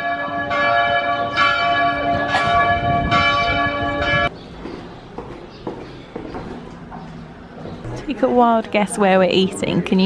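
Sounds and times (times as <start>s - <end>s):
church bells ringing: 0.0s - 4.3s.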